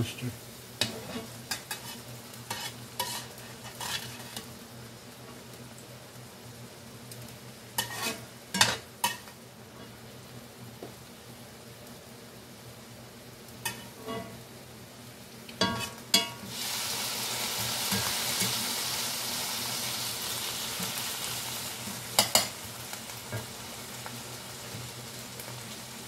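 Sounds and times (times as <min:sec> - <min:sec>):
peppers sizzling in oil: 0:00.0 - 0:26.0
metal spatula scraping pan: 0:00.8 - 0:04.5, 0:07.8 - 0:09.3, 0:15.6 - 0:16.3.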